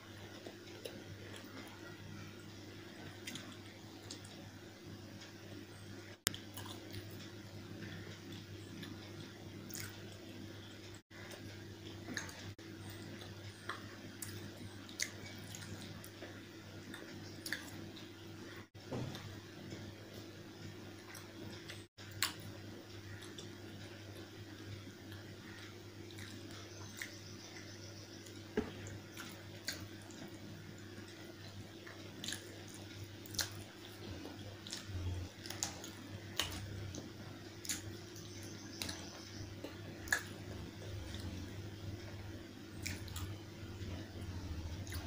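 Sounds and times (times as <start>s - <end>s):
low hum: 0.0s - 45.0s
wet chewing and mouth smacks: 31.8s - 38.0s, 38.8s - 41.5s, 42.8s - 45.0s.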